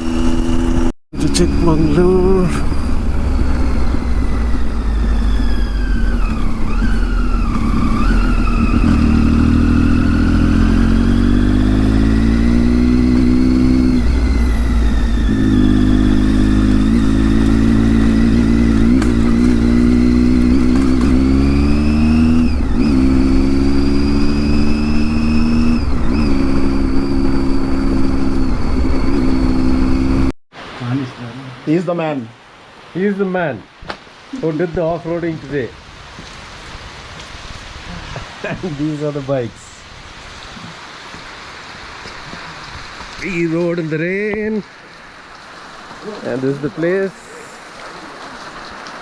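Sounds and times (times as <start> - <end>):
motorcycle engine accelerating: 0.0 - 30.4.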